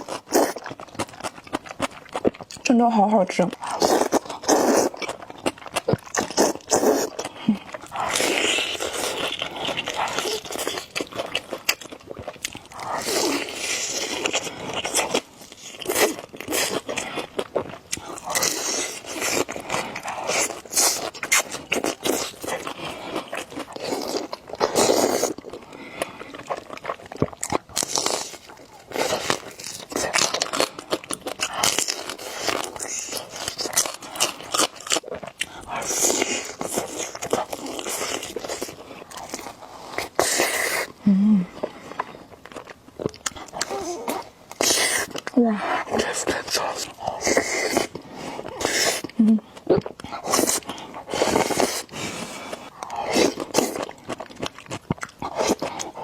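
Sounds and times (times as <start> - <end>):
chewing noodles: 0.0 - 56.0
slurping noodles: 3.6 - 5.2, 6.1 - 11.0, 18.0 - 26.6, 35.7 - 41.0, 43.6 - 49.1, 50.1 - 53.8.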